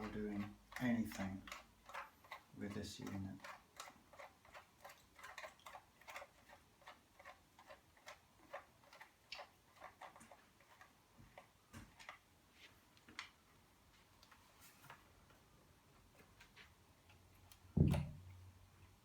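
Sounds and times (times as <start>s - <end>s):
faint regular ticking: 0.0s - 12.2s.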